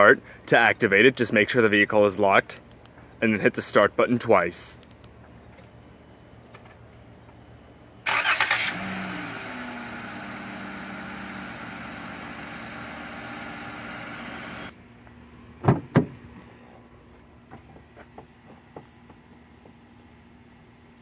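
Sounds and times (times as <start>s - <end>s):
car engine idling: 8.0s - 14.7s
starter cranking: 8.1s - 9.0s
sharp knocks: 15.6s - 16.2s.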